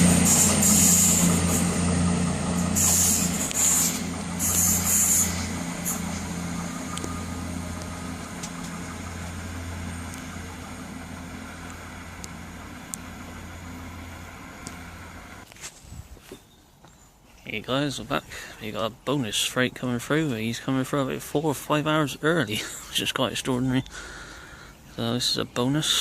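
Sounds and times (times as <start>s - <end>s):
air hissing: 0.0s - 15.4s
diesel train engine hum: 0.0s - 15.5s.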